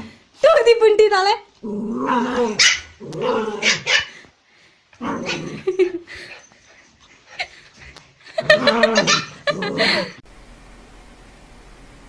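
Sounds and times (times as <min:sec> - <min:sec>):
puppy barking: 0:02.6 - 0:03.0, 0:03.6 - 0:04.1, 0:08.8 - 0:09.6.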